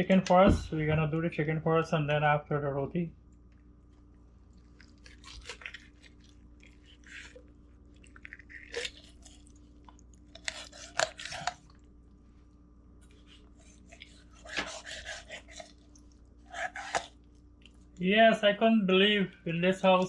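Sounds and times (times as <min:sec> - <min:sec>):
knife crunching through chicken bone: 0:04.0 - 0:11.9, 0:13.0 - 0:17.8.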